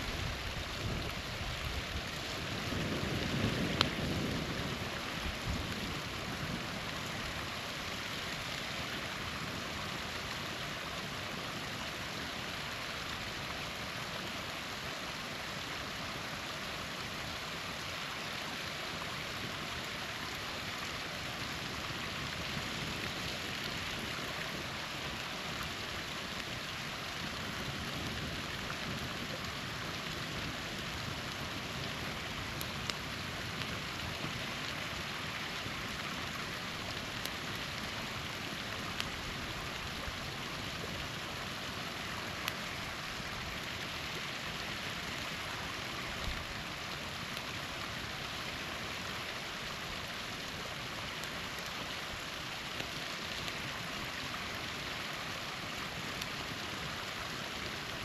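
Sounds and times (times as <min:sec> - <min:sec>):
small waterfall splashing: 0:00.0 - 0:58.0
campfire crackling: 0:00.2 - 0:58.0.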